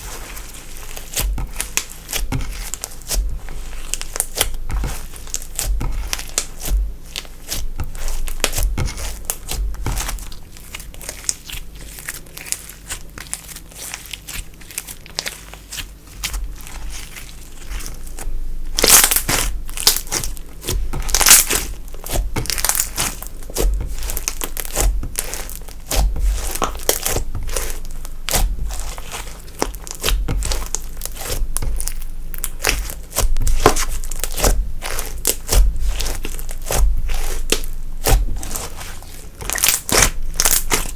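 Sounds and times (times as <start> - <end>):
slime squeezed by hand crackling: 16.6 - 40.9.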